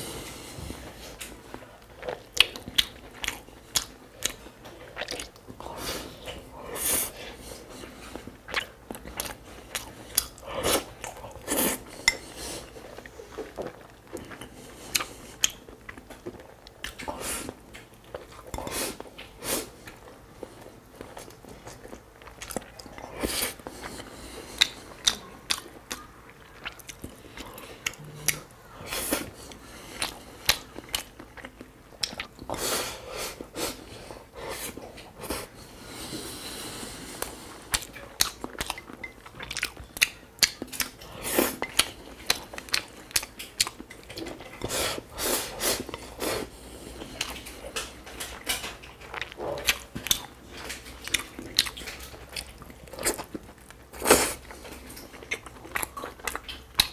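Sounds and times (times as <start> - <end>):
chewing and biting: 30.0 - 32.6, 37.7 - 44.8, 47.0 - 56.9.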